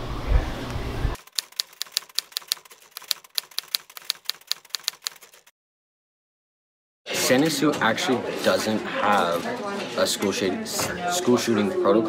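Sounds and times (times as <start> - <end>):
typewriter keys clacking: 1.2 - 5.5.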